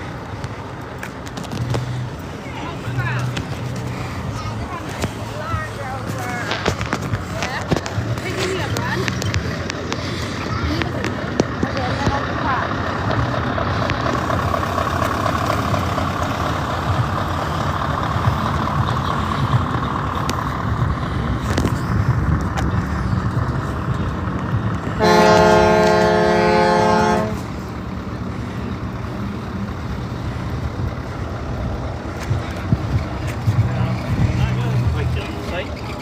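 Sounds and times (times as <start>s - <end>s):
low rumble of vehicle engines: 0.0s - 36.0s
truck air horn blast: 25.0s - 27.5s.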